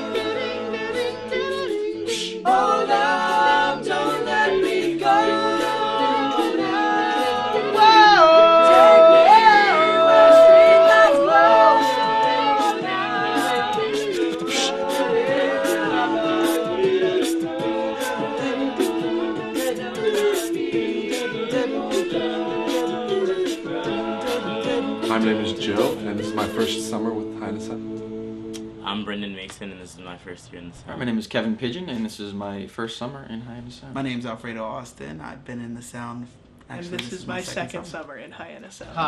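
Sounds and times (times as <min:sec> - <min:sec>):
men singing a cappella: 0:00.0 - 0:28.8
vocal percussion beat: 0:00.0 - 0:28.8.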